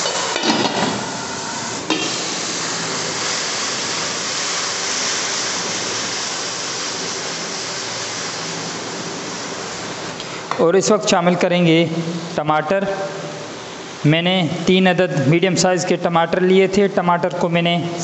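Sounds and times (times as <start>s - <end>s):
food sizzling in hot fat: 1.2s - 10.1s.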